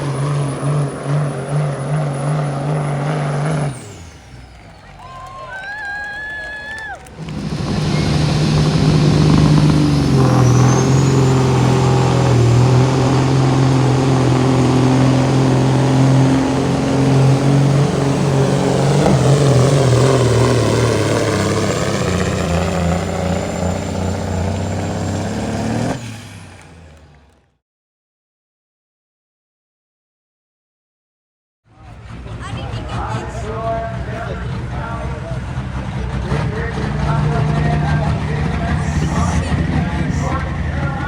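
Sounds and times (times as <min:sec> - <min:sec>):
pulling engine at high revs: 0:00.0 - 0:27.6, 0:31.8 - 0:41.0
high whine: 0:07.2 - 0:12.4.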